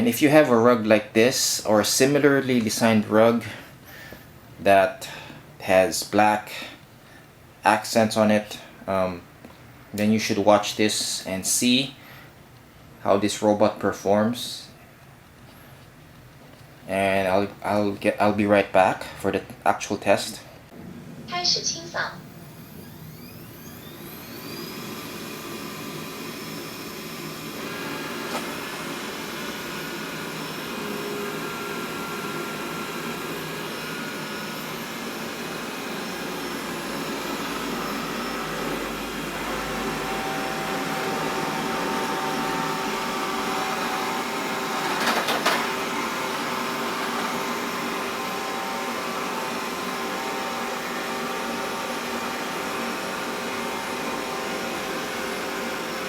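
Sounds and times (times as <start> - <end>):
robot vacuum whining: 21.3 - 56.0.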